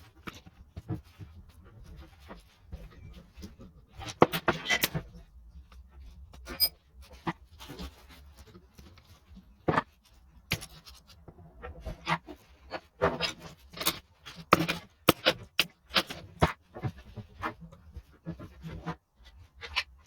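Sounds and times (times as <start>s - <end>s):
clicks knocks and scrapes on engine parts: 0.0s - 20.0s.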